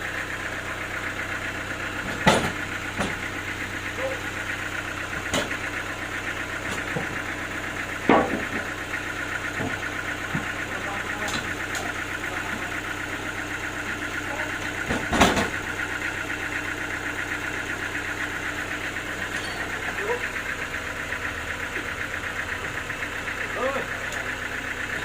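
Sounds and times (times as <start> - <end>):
engine idling: 0.0 - 25.0
loud knocks: 8.0 - 8.7, 14.8 - 15.6.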